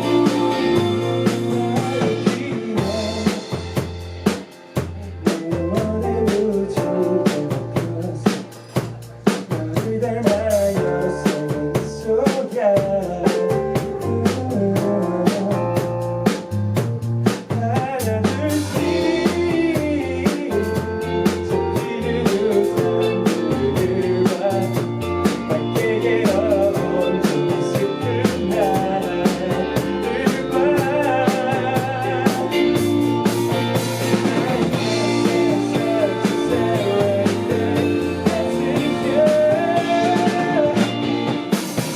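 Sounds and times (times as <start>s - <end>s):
electric guitar: 0.0s - 8.9s, 18.1s - 41.9s
bass line: 0.0s - 41.9s
drum kit beat: 0.0s - 41.9s.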